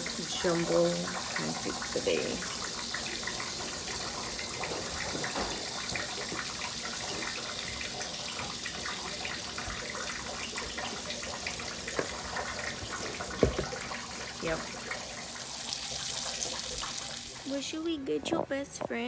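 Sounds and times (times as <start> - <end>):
water running from a tap: 0.0 - 18.0
small knocks: 13.3 - 13.8.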